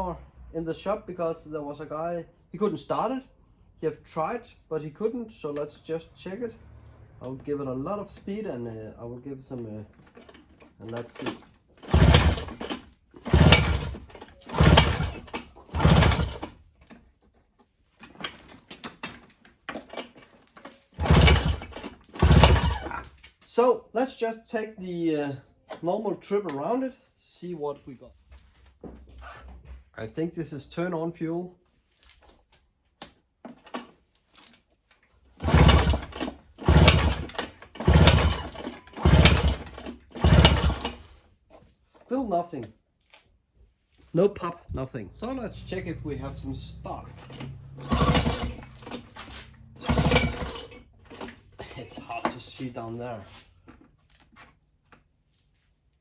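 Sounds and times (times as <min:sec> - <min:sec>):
starter rope pulls: 0:09.9 - 0:17.0, 0:18.0 - 0:23.3, 0:35.3 - 0:41.7, 0:44.1 - 0:54.4
motor clicking and rattling: 0:10.0 - 0:16.6, 0:18.1 - 0:23.1, 0:35.4 - 0:41.1, 0:46.7 - 0:51.6.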